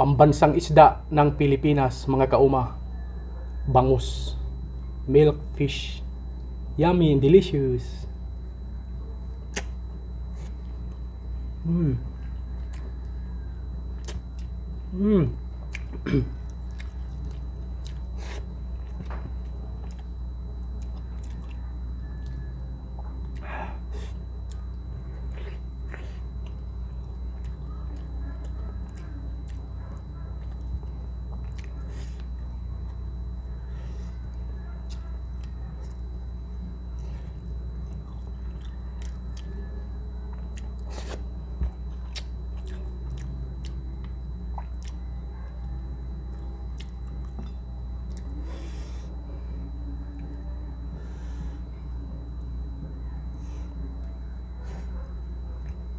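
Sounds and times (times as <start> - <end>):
low steady hum: 0.0 - 55.9
chewing with mouth smacks: 12.2 - 13.2, 13.9 - 14.7, 15.6 - 33.1, 34.1 - 36.0, 36.9 - 48.4.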